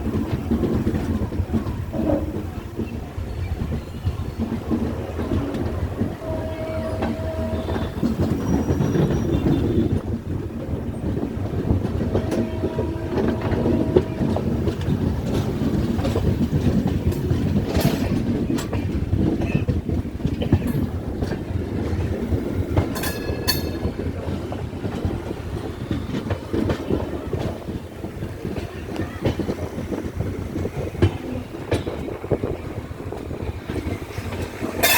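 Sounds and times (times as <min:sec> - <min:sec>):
train rumbling on rails: 0:00.0 - 0:34.9
wheels clattering over rail joints: 0:00.0 - 0:34.9
metallic squeals and clanks: 0:06.4 - 0:09.8.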